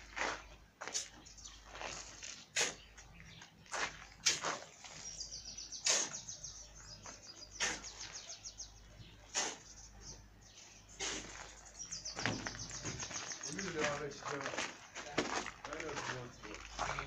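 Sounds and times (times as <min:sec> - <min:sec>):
sharp crunches: 0:00.0 - 0:08.4, 0:09.2 - 0:09.9, 0:11.0 - 0:17.0
bird singing a fast trill: 0:01.1 - 0:14.2.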